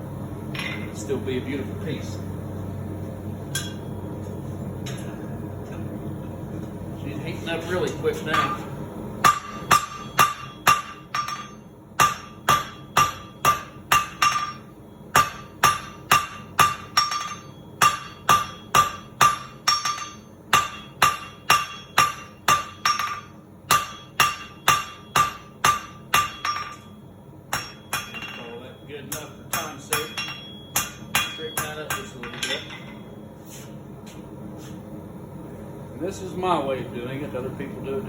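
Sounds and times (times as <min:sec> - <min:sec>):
hammer ringing on anvil: 0:03.5 - 0:03.9, 0:08.3 - 0:33.1.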